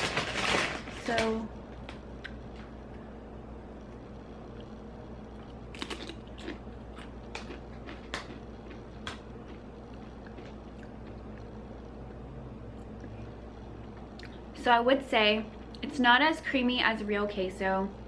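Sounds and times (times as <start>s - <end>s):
person chewing crunchy chips: 4.4s - 14.4s.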